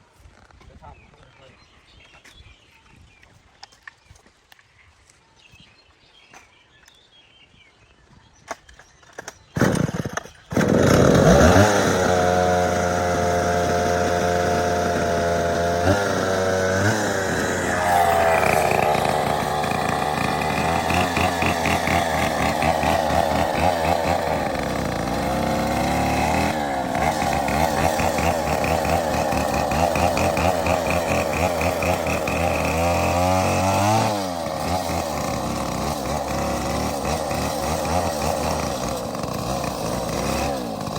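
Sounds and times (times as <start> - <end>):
chainsaw revving and cutting: 9.2 - 40.9.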